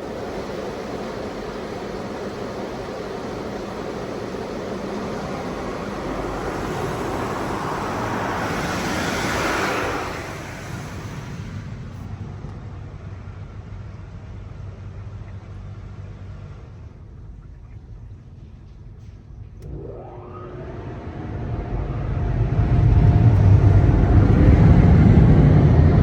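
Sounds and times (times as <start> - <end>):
low machinery hum: 0.0 - 26.0
water spray rushing: 6.3 - 11.5.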